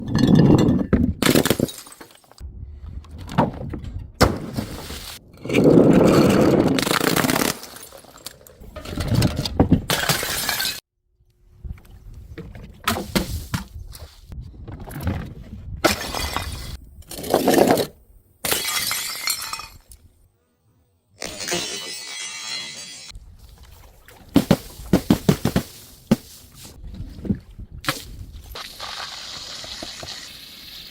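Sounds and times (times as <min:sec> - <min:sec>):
glass bottles smashing: 0:00.2 - 0:02.2, 0:09.9 - 0:10.8, 0:18.5 - 0:19.9, 0:21.2 - 0:23.1
glass shards scattering and clinking: 0:09.9 - 0:10.8, 0:18.5 - 0:20.0, 0:21.2 - 0:23.1.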